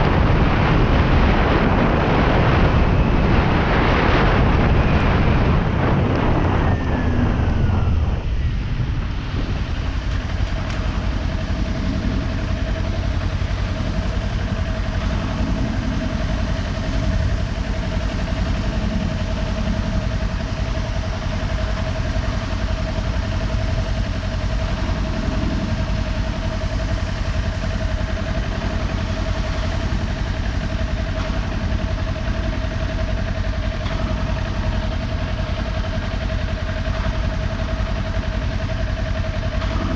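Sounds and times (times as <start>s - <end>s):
thin whine: 0.0s - 39.9s
motorcycle engine idling: 4.8s - 39.9s.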